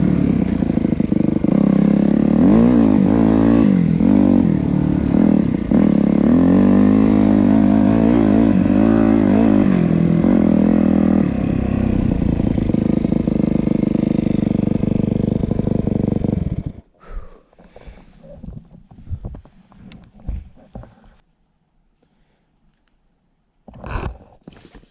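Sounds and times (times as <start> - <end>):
dirt bike engine revving: 0.0 - 16.9.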